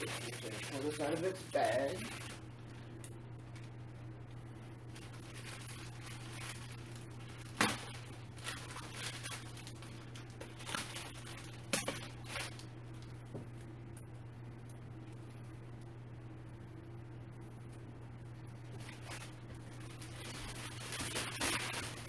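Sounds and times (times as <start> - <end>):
plastic bag rustling: 4.9 - 12.7.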